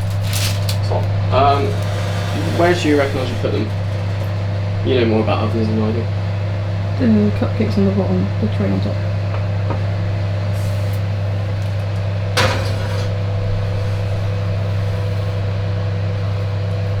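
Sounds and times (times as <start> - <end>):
kitchen fan humming: 0.0 - 17.0
short clatter: 12.4 - 13.3.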